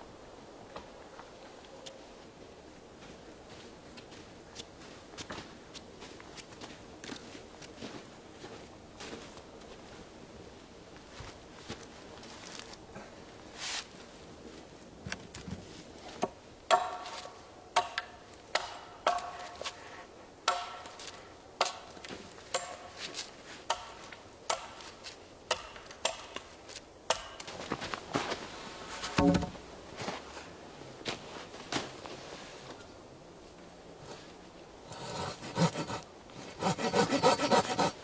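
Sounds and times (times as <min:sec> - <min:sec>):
dull heavy knock: 0:29.2 - 0:29.6
tool striking wood: 0:29.2 - 0:29.6.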